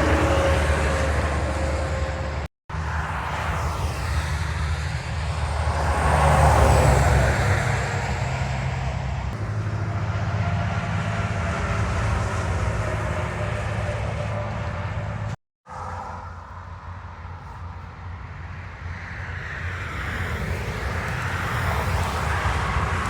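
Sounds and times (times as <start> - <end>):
low engine drone: 0.0 - 19.0
truck passing on highway: 0.0 - 23.0.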